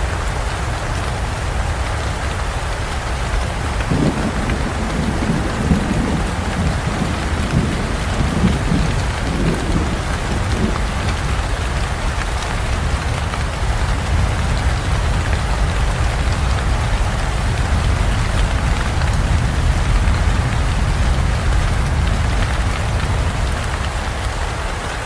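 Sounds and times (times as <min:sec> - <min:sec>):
heavy rain falling: 0:00.0 - 0:25.0
rolling thunder rumble: 0:03.1 - 0:24.4.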